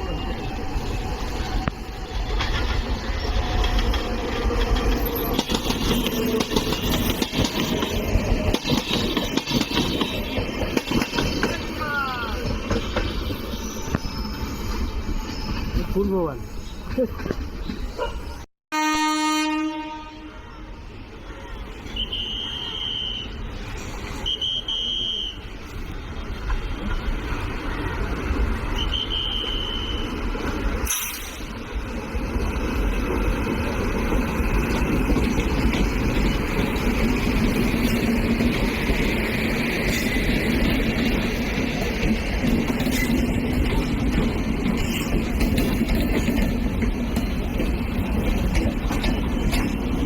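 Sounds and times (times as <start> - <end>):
train running past: 0.0 - 50.0
high whistle-like tone: 21.9 - 23.4, 24.1 - 25.5, 28.7 - 30.3.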